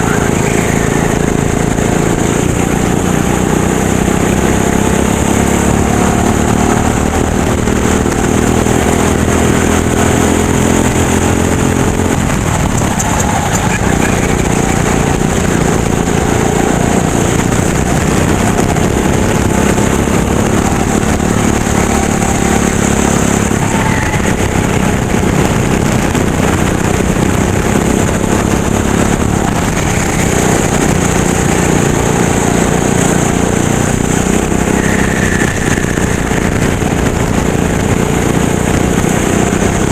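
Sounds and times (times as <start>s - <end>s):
kart engine racing: 0.0s - 39.9s.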